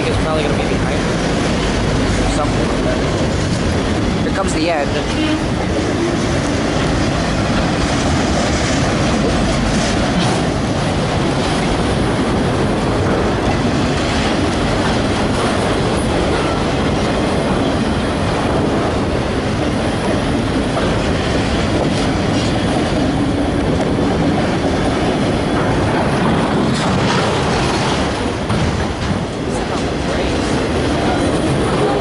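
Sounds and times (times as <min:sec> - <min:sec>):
freight train wheels rumbling: 0:00.0 - 0:32.0.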